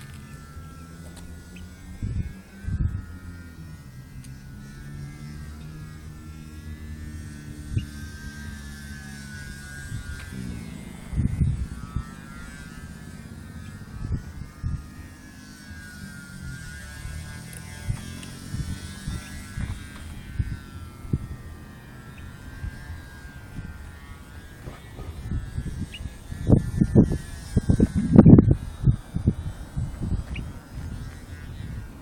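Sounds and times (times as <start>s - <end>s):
low rumble: 0.0s - 31.9s
model aircraft motor whine: 0.0s - 32.0s.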